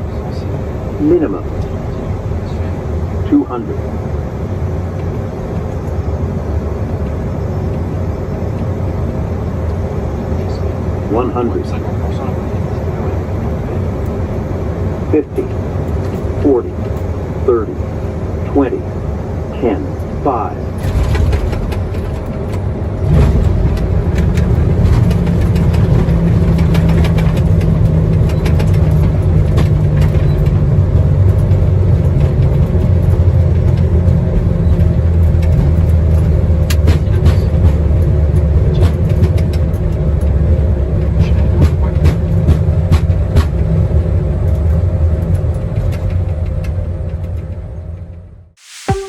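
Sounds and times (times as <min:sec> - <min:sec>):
airliner cockpit rumble: 0:00.0 - 0:49.0.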